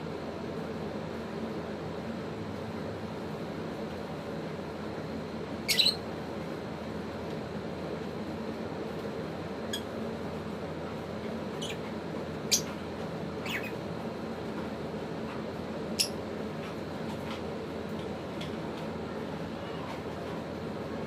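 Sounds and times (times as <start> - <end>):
steady background hum: 0.0 - 21.0
lovebirds chirping: 5.7 - 6.0, 11.6 - 11.8, 12.5 - 12.7, 13.4 - 13.8.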